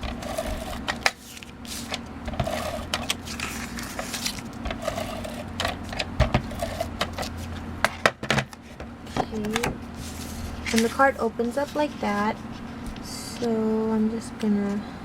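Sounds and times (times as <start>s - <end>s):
paper handled on work surface: 0.0s - 7.6s, 10.0s - 13.1s
steady low hum: 0.0s - 15.0s.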